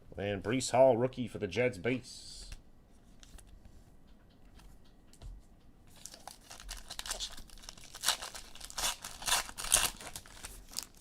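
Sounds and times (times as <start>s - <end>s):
plastic wrapping crinkling: 5.9s - 11.0s.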